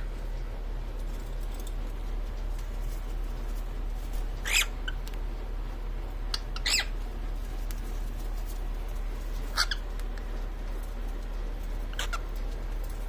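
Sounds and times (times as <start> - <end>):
steady low hum: 0.0 - 13.0
cockatiel shrill calls: 4.4 - 5.0, 6.3 - 7.0, 9.5 - 9.9, 11.9 - 12.3.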